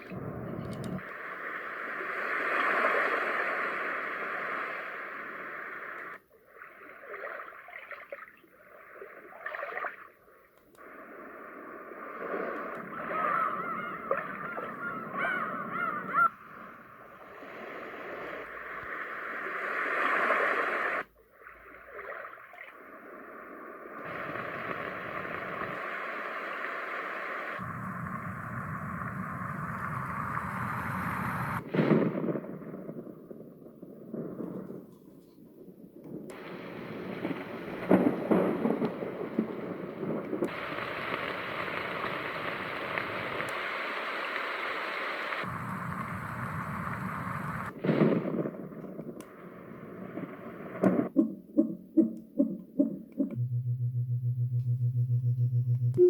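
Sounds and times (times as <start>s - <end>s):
recorded thunder rumbles: 0.0s - 1.1s, 24.0s - 26.8s, 27.5s - 44.4s, 45.4s - 51.2s
steady hiss: 0.0s - 6.5s, 10.6s - 13.3s, 16.4s - 21.2s, 22.8s - 51.1s
bird calls: 12.8s - 16.8s.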